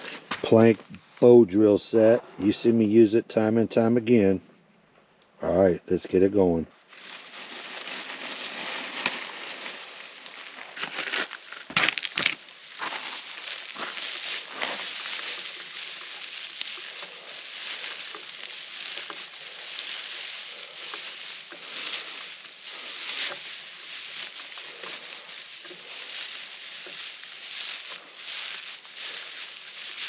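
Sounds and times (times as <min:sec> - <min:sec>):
dry pine needles crackling: 0:06.9 - 0:30.0.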